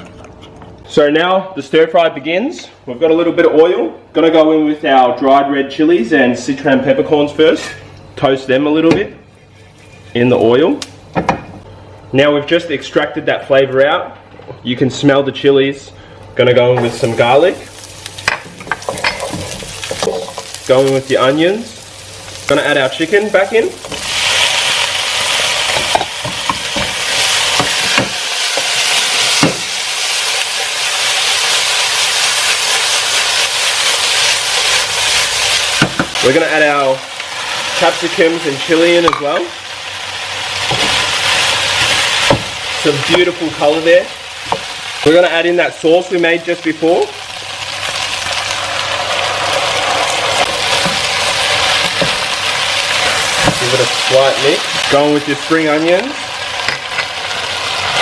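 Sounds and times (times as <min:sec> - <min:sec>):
food sizzling in hot oil: 0:16.8 - 0:58.0.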